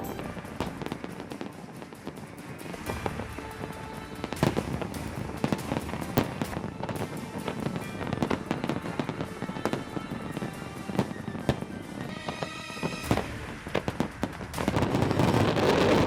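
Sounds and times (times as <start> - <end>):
fireworks bursts and crackling pops: 0.0 - 16.0
music playing: 0.0 - 16.0.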